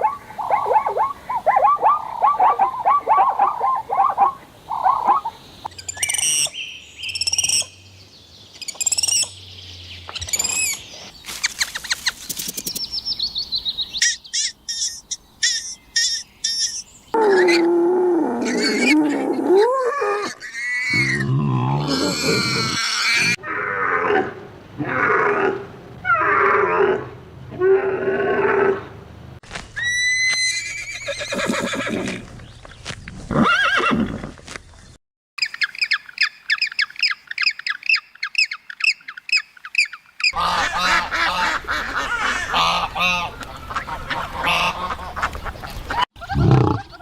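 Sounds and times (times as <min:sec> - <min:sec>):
high bird chirps: 0:04.7 - 0:07.8, 0:08.5 - 0:17.1
quick clicking chirps: 0:10.1 - 0:13.0.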